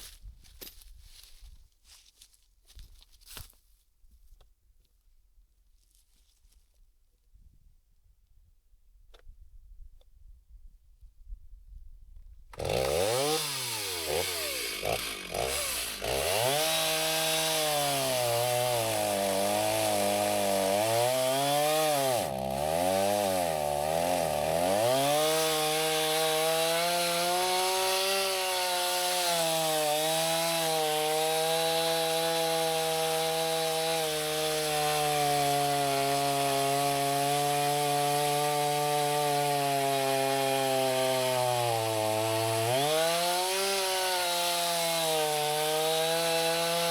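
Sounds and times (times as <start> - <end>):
chainsaw cutting wood: 12.5 - 46.9.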